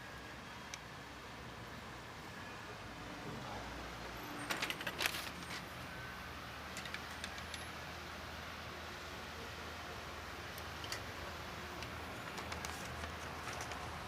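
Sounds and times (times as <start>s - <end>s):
low hum of outdoor traffic: 0.0s - 14.0s.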